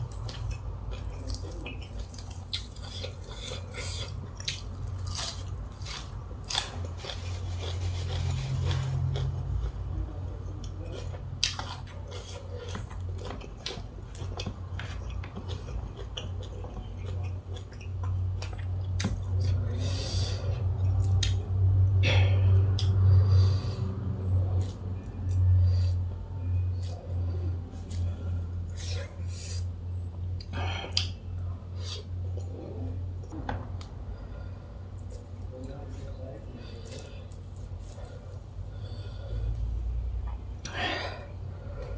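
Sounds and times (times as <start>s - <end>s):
person chewing food: 0.0s - 23.8s, 24.5s - 29.8s, 30.4s - 35.8s, 36.6s - 41.9s
steady low hum: 0.0s - 41.9s
steady low rumble: 12.8s - 41.9s.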